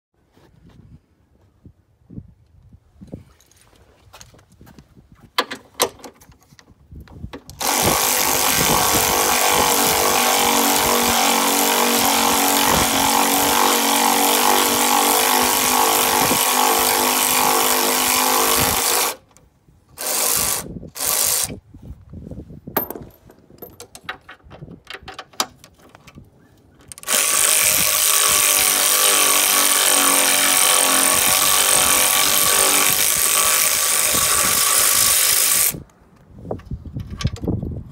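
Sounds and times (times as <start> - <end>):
power tool running: 7.6 - 19.2, 20.0 - 21.5, 27.0 - 35.8.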